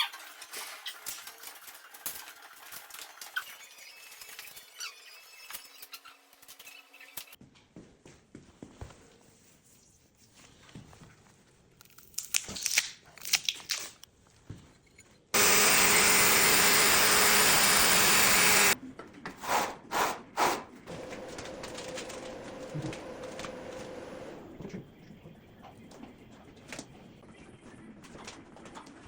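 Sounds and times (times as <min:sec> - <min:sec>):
power tool running: 0:15.4 - 0:18.8, 0:20.9 - 0:24.4.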